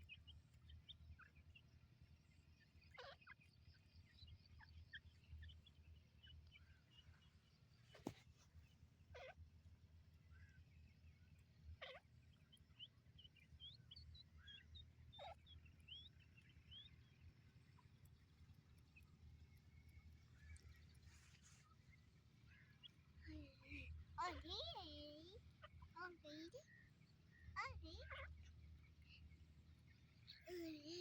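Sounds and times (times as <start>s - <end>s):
birds chirping: 10.3s - 31.0s.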